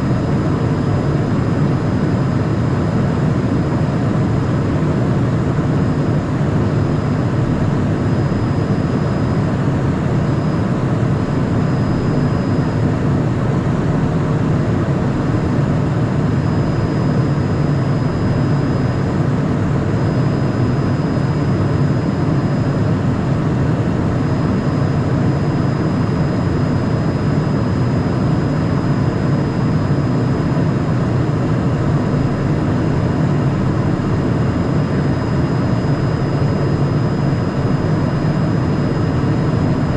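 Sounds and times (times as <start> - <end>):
faint high whine: 0.0 - 39.9
jet airflow and engine noise: 0.0 - 39.9.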